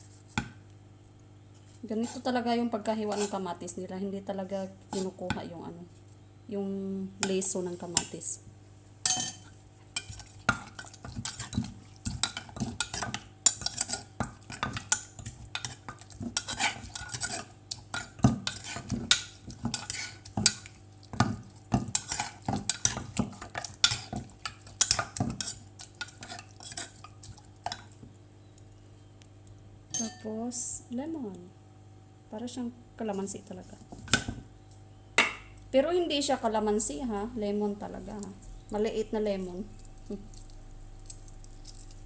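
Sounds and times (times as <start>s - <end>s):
utensils clinking against bowl: 9.1s - 20.7s, 29.9s - 30.3s.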